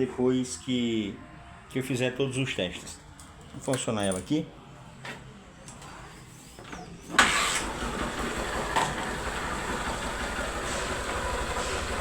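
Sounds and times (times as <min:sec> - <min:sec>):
motorcycle engine starting and idling: 0:07.1 - 0:12.0.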